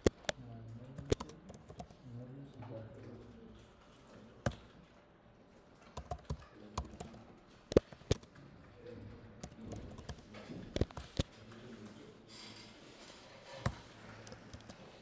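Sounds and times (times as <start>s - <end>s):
computer keyboard typing: 0.0s - 2.0s, 5.8s - 8.4s, 9.4s - 11.3s, 13.6s - 15.0s.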